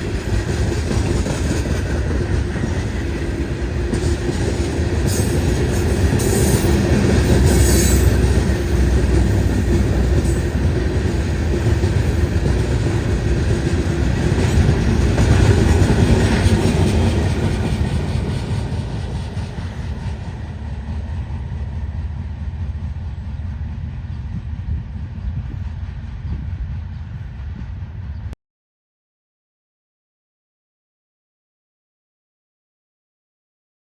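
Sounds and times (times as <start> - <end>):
freight cars rumbling on rails: 0.0 - 28.4
high wheel squeals: 6.2 - 8.4.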